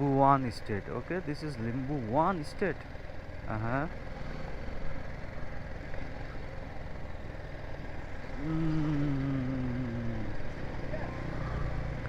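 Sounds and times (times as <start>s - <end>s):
motorcycle engine: 0.0s - 12.0s
wind and road noise: 0.0s - 12.0s
low droning tone: 8.4s - 10.4s.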